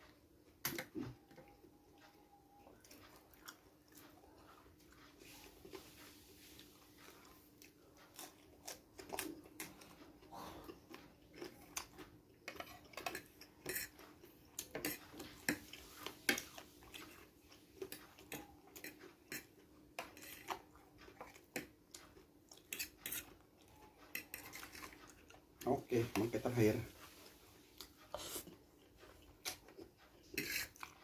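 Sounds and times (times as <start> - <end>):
chewing: 0.8 - 26.1, 26.8 - 31.0.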